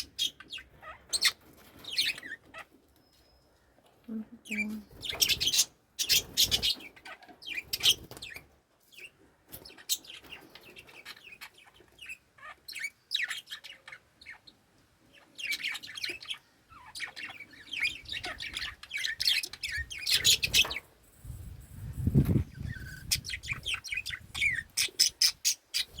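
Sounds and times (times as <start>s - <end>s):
budgerigars chirping: 0.0s - 2.8s, 4.5s - 20.9s, 22.6s - 26.0s.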